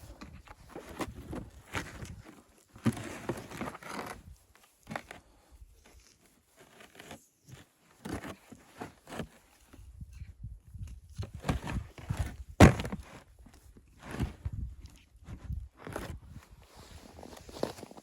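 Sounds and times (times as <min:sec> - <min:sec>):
footsteps in snow: 0:16.7 - 0:18.0.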